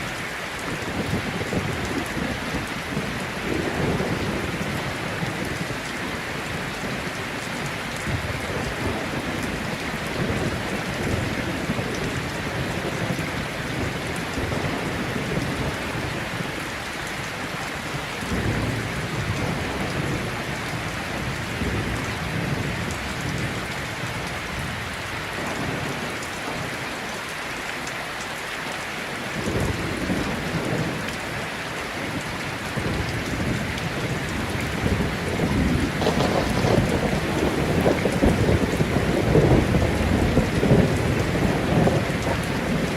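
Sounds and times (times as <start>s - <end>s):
heavy rain falling: 0.0s - 42.9s
thunder rolling: 32.8s - 42.9s.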